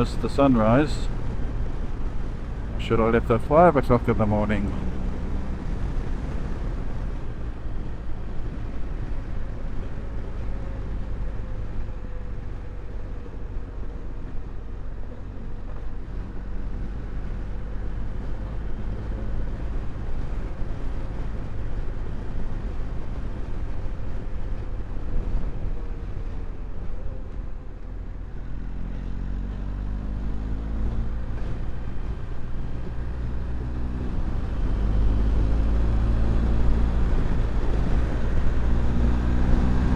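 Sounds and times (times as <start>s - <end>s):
motorcycle engine riding: 15.1s - 39.9s.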